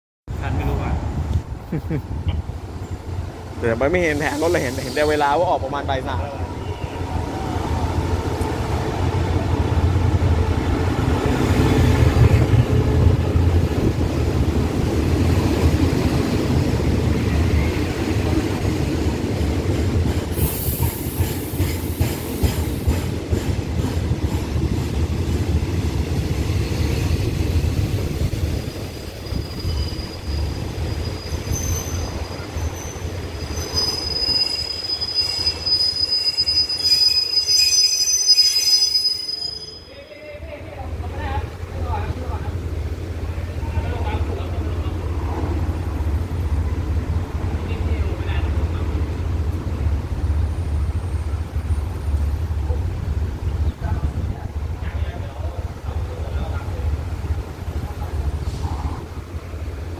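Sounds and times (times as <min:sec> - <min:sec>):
diesel locomotive engine rumble: 0:00.3 - 0:37.9, 0:40.2 - 0:59.9
air hiss: 0:04.0 - 0:05.5, 0:20.3 - 0:23.1
high brake squeal: 0:04.1 - 0:05.6, 0:29.1 - 0:40.2.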